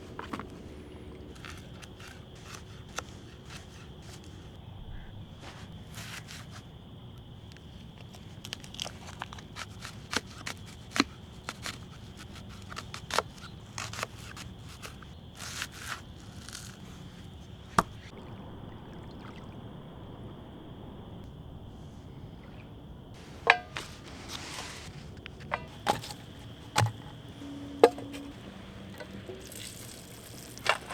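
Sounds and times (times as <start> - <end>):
faint high hum: 17.9 - 30.9
clicks taps and scrapes: 23.2 - 28.4.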